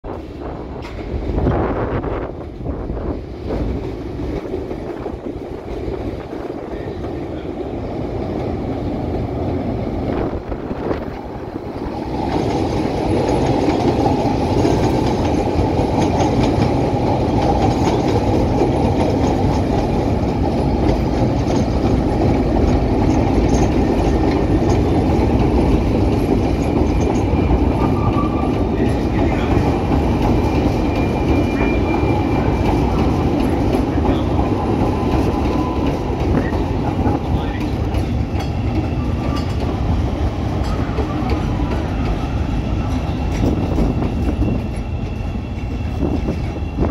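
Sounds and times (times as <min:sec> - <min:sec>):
clickety-clack over rail joints: 0:00.0 - 0:46.9
train wheels on rails: 0:00.0 - 0:46.9.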